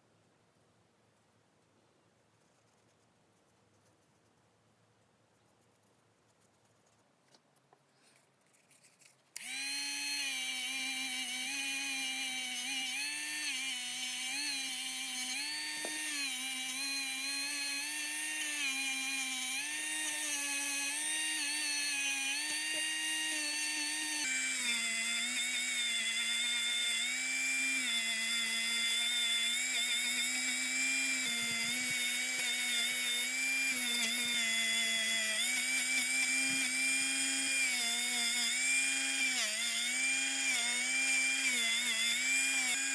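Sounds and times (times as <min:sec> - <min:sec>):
high-speed rotary tool whining: 0:09.4 - 0:42.9.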